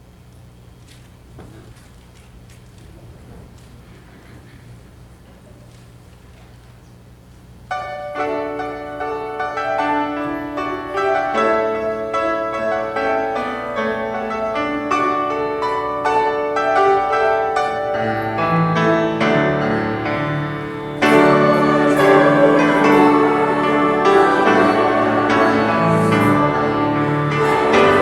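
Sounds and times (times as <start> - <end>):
piano chords and melody: 7.7 - 28.0.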